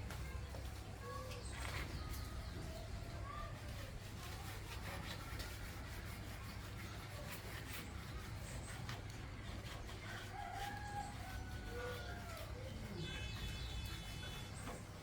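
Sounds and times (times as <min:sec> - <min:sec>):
rooster crowing: 0:10.3 - 0:12.5.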